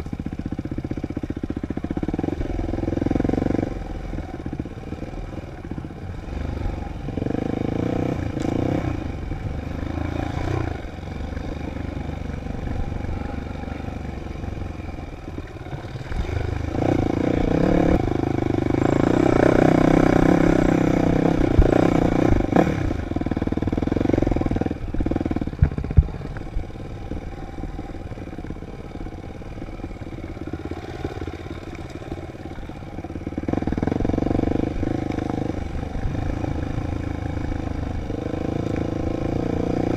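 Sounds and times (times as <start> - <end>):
dirt bike engine revving: 0.9 - 5.4, 6.1 - 39.9.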